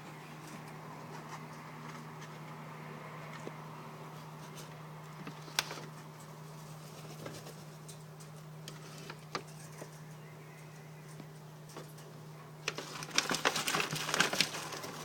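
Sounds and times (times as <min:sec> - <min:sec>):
steady low hum: 0:00.0 - 0:15.0
small birds tapping and scratching: 0:04.4 - 0:15.0.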